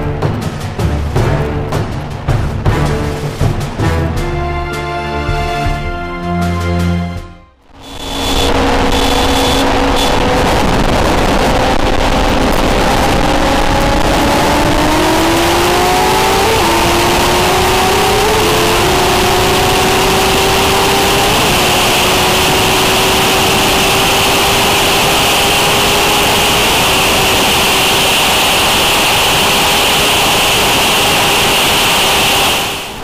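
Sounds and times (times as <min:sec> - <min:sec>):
motorcycle engine pulling hard: 0:07.7 - 0:33.0
wind rush on microphone: 0:07.7 - 0:33.0.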